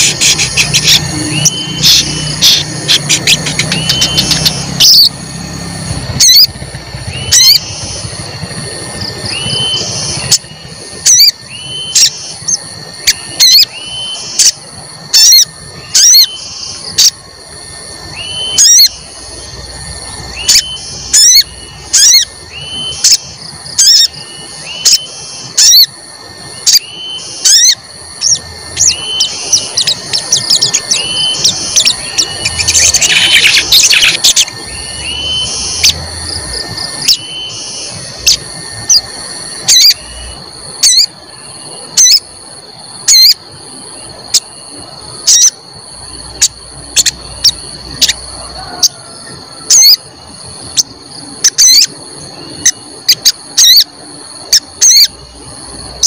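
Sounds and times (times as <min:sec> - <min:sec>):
bird chirping sharply: 0:00.0 - 0:05.1, 0:26.6 - 0:36.0
steady high-pitched whine: 0:00.0 - 0:56.0.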